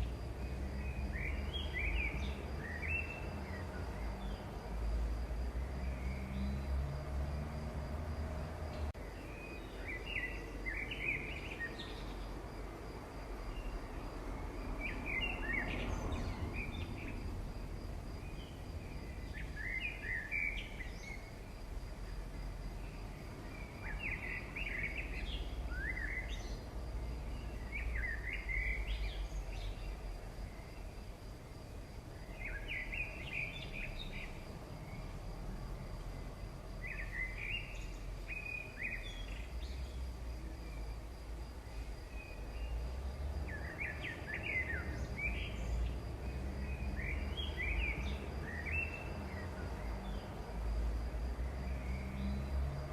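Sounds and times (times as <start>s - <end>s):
bird chirping: 8.7s - 12.3s, 18.2s - 21.4s.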